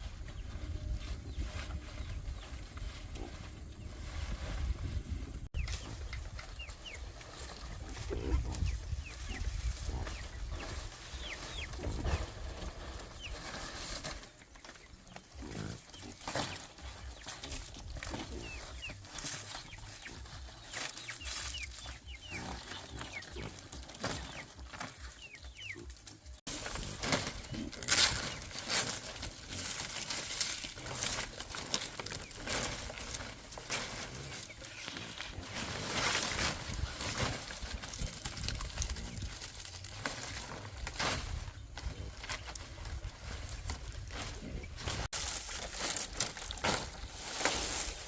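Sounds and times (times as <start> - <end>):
pigs grunting: 7.7 - 8.7, 15.2 - 16.8, 22.2 - 24.6, 26.6 - 30.0.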